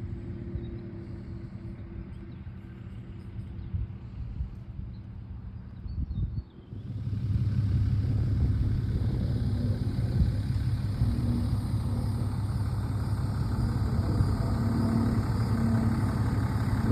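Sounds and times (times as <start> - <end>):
heavy machine engine droning: 6.6 - 16.9.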